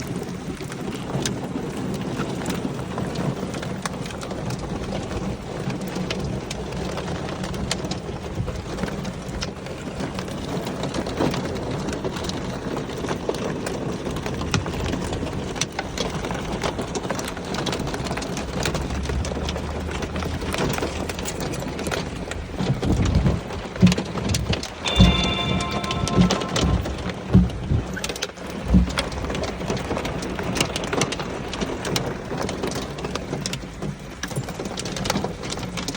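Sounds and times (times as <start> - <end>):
hailstones ticking on surfaces: 0.0 - 24.7, 28.6 - 35.9
heavy rain downpour: 0.0 - 35.9
thunder rumbling: 24.8 - 27.9.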